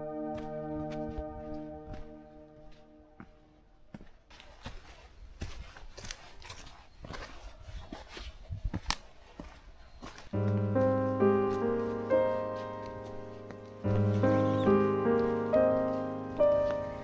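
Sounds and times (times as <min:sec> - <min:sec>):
music: 0:00.0 - 0:03.4, 0:10.4 - 0:17.0
footsteps on wet rocky trail: 0:00.2 - 0:17.0.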